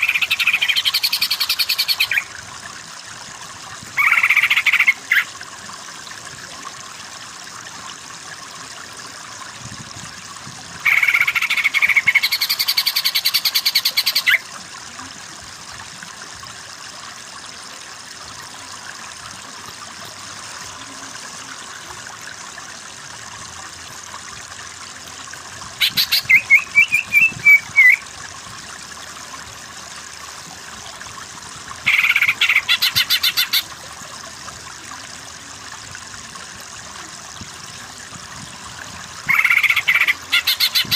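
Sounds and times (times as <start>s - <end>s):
chorus of frogs: 0.0s - 2.3s, 3.9s - 5.4s, 10.8s - 14.5s, 31.7s - 34.3s, 39.1s - 40.9s.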